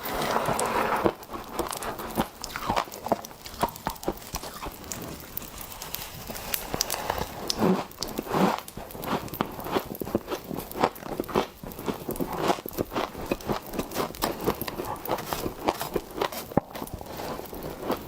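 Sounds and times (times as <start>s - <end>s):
frost being bitten and chewed: 0.5s - 18.0s.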